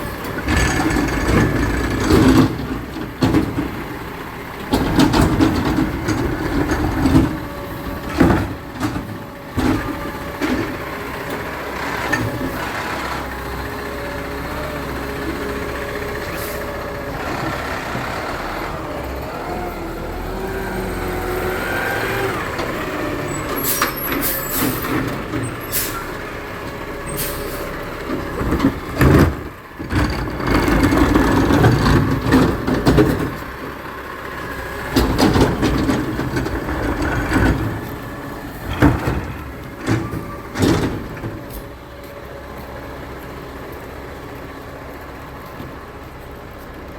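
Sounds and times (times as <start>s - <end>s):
garbage truck engine whining: 0.0s - 46.9s
air brakes hissing: 16.2s - 16.8s, 23.3s - 26.2s, 27.0s - 27.8s.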